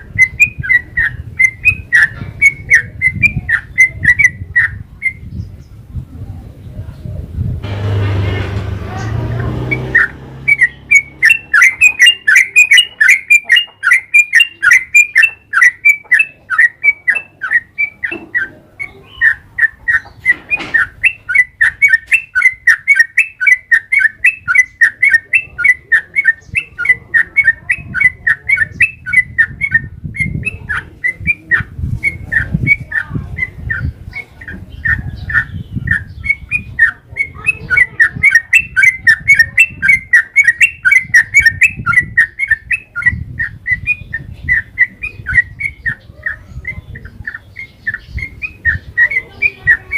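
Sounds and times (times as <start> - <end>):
low background rumble: 7.5 - 11.6
bird singing chirpy notes: 7.6 - 49.9.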